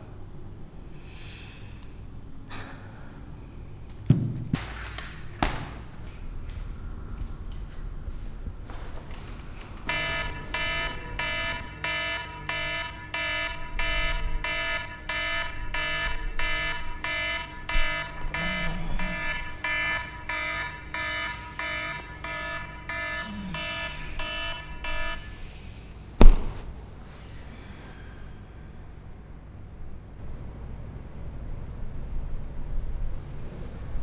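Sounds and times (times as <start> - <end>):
phone alarm beeping: 9.9 - 25.3
loud thump: 26.2 - 26.7.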